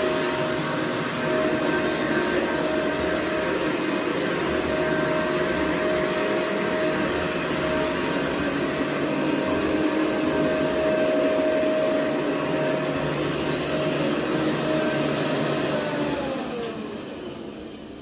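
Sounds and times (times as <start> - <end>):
vacuum cleaner whining: 0.0 - 18.0.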